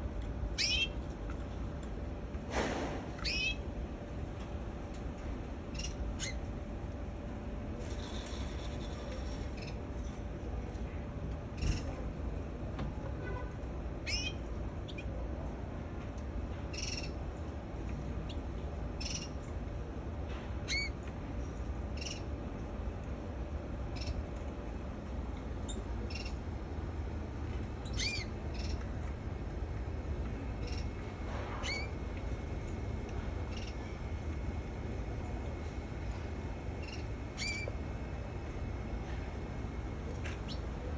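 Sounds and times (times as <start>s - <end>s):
low background noise: 0.0s - 40.9s
canary chirping: 0.6s - 1.0s, 3.2s - 3.6s, 5.7s - 6.4s, 14.0s - 15.1s, 16.7s - 17.2s, 19.0s - 19.4s, 20.7s - 21.0s, 22.0s - 22.3s, 24.0s - 24.2s, 25.7s - 26.4s, 27.8s - 28.8s, 30.6s - 31.0s, 31.6s - 32.0s, 33.5s - 33.8s, 36.8s - 37.8s.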